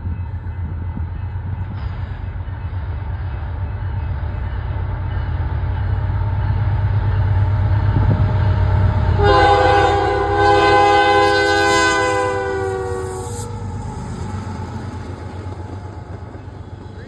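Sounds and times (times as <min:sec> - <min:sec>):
diesel locomotive rumble: 0:00.0 - 0:17.0
train air horn blasts: 0:09.0 - 0:13.8.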